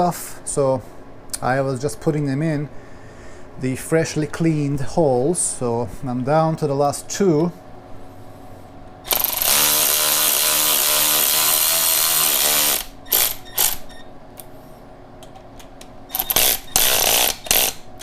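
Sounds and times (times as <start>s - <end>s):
cordless power tool driving studs: 9.1s - 13.9s, 16.1s - 17.8s.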